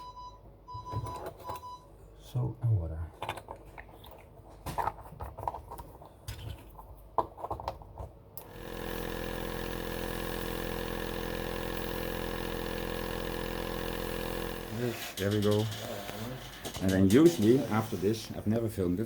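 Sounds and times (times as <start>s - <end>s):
small electric motor humming: 8.4s - 18.4s.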